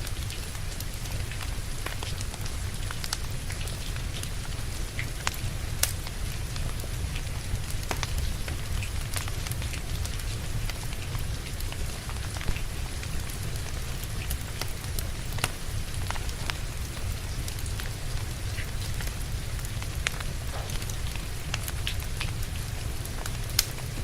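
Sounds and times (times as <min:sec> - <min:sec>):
steady rain: 0:00.0 - 0:24.0
wood fire crackling: 0:00.0 - 0:24.0.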